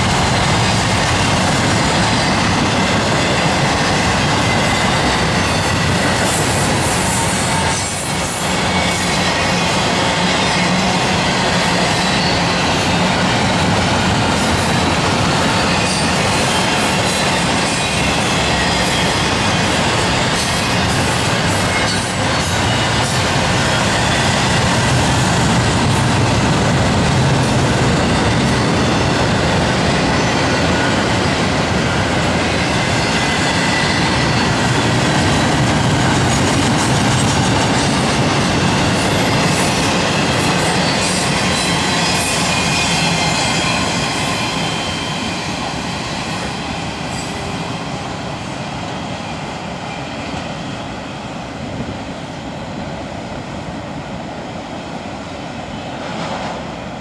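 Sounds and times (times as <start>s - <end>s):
train wheels rumbling on rails: 0.0s - 57.0s
faint high wheel squeal: 40.6s - 47.6s.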